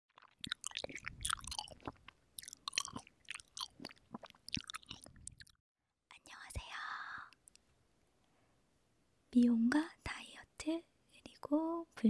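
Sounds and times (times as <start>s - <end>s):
wet chewing of cherries: 0.1s - 5.6s.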